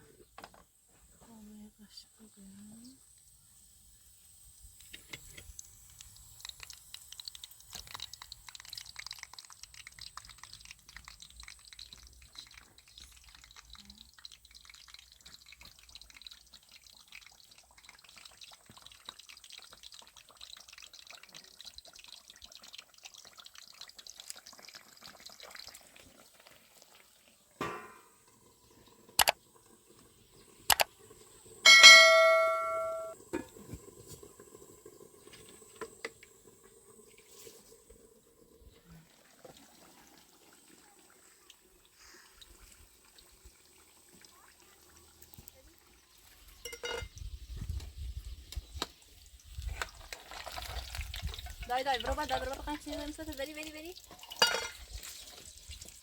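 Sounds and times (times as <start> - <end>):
dense crackle of ticks: 5.6 - 25.8
metallic clang ringing: 31.7 - 33.2.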